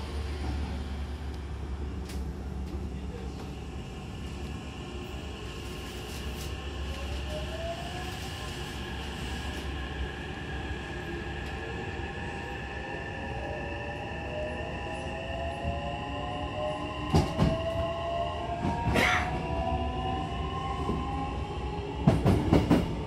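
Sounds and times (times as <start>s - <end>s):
train wheels rumbling: 14.3s - 23.0s.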